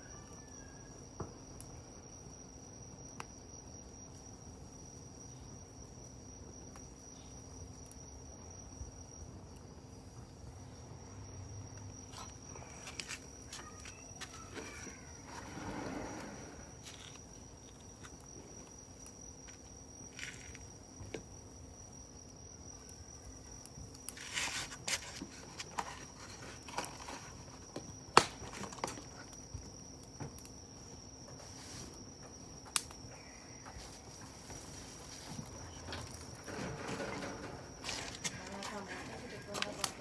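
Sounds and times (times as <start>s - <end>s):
high-pitched insect trill: 0.0s - 40.0s
campfire crackling and popping: 27.4s - 30.6s.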